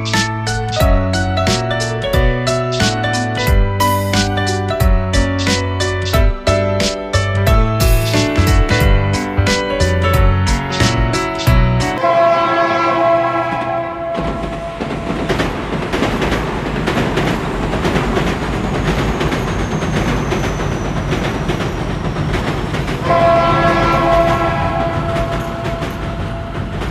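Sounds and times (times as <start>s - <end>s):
train rumble: 0.0s - 26.9s
wheels clicking on rails: 0.0s - 26.9s
train horn chord: 11.9s - 15.2s, 23.0s - 26.9s.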